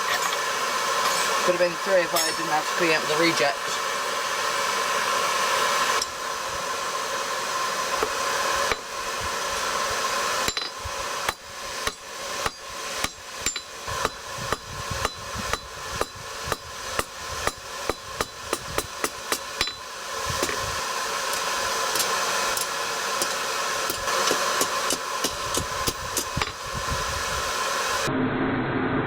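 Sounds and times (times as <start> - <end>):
hammer striking steel on anvil: 0.0 - 1.4, 2.1 - 2.6, 10.4 - 20.6, 21.4 - 26.6.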